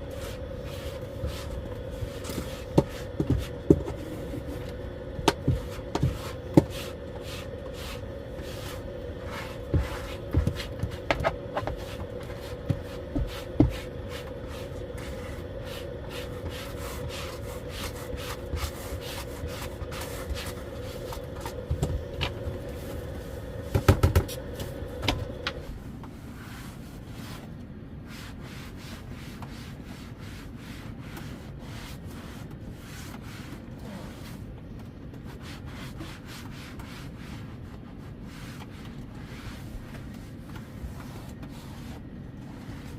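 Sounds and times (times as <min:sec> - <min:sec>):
knocks and rubbing of handling: 0:00.1 - 0:27.5.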